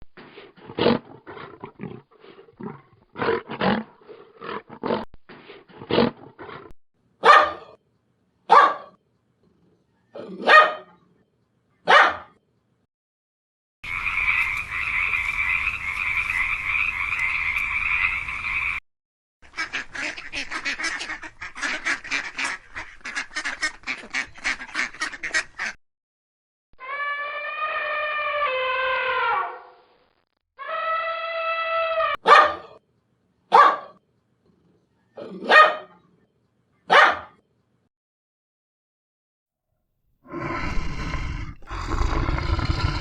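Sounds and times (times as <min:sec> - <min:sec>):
animal chorus: 0:13.8 - 0:18.8, 0:40.3 - 0:43.0
long drawn-out animal calls: 0:13.8 - 0:18.8, 0:26.8 - 0:29.6, 0:30.6 - 0:32.2.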